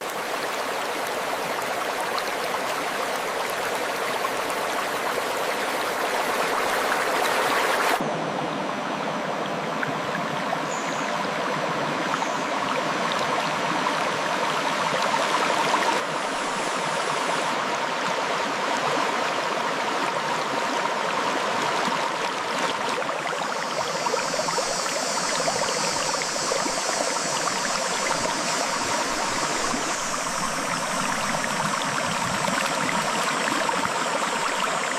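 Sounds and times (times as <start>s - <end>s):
stream flowing over rocks: 0.0s - 34.9s.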